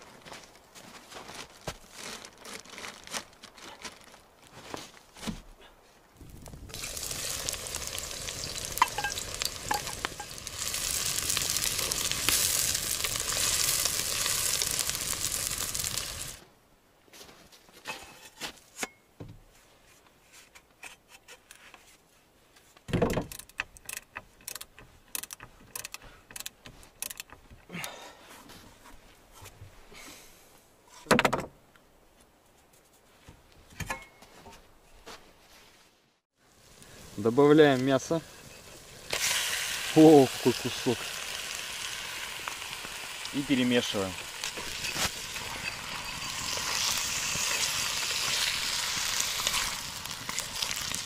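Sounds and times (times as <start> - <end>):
loud steady hiss: 36.4 - 49.9.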